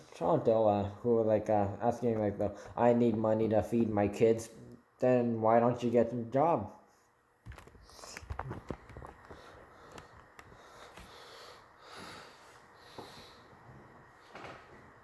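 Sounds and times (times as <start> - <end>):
person breathing faintly: 9.2 - 14.6.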